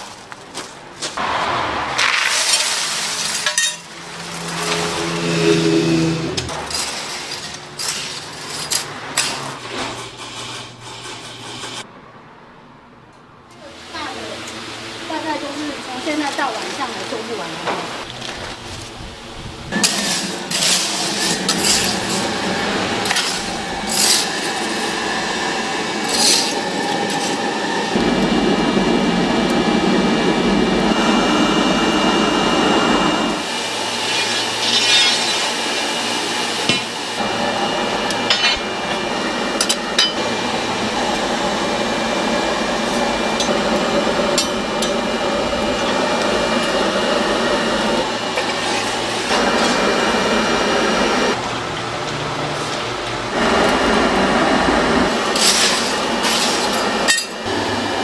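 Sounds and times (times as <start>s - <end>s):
dense workshop tool noise: 0.0s - 12.3s, 12.9s - 58.0s.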